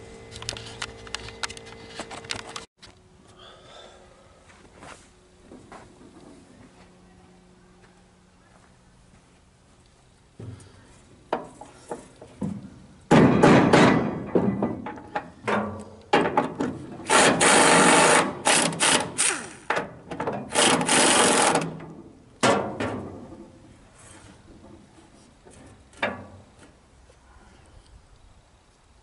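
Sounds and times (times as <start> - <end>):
loud noisy tool bursts: 17.0 - 19.7, 20.5 - 21.8.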